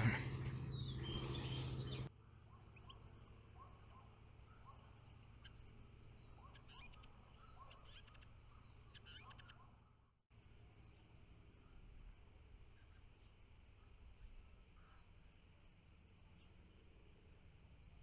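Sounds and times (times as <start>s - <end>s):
background hum: 0.0s - 2.1s
small songbirds chirping: 0.0s - 2.1s.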